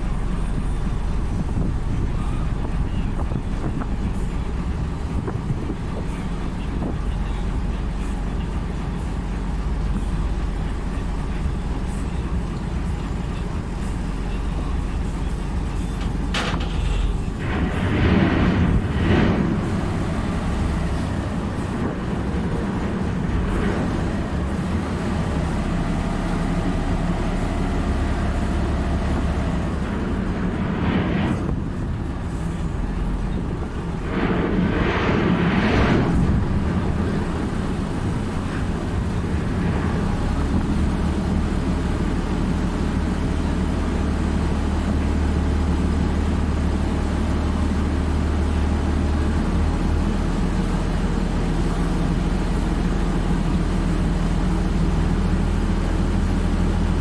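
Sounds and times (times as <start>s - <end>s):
engine humming: 0.0s - 57.0s
rushing swells: 17.4s - 27.4s, 29.0s - 42.3s.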